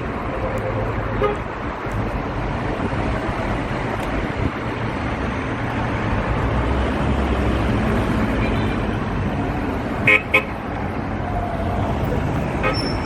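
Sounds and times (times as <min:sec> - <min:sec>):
car horn toots: 0:10.0 - 0:10.5, 0:12.6 - 0:13.0.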